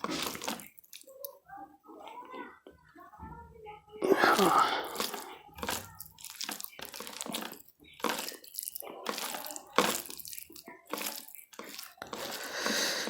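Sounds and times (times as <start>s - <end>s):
wet eating sounds: 0.0s - 1.4s, 4.0s - 13.0s.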